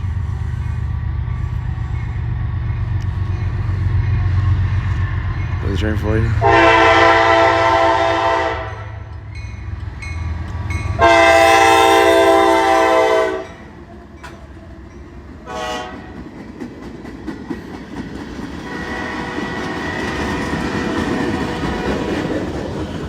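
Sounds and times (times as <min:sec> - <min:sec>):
train rumbling past: 0:00.0 - 0:23.0
locomotive air horn: 0:06.4 - 0:09.0, 0:11.0 - 0:13.6, 0:15.4 - 0:16.2, 0:18.7 - 0:20.0
wheels clicking over rail joints: 0:13.4 - 0:23.0.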